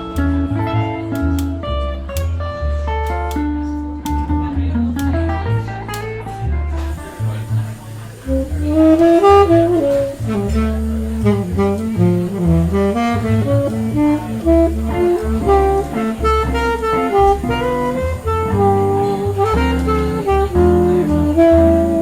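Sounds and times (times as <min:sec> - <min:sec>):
bass line: 0:00.0 - 0:22.0
saxophone melody: 0:06.8 - 0:22.0.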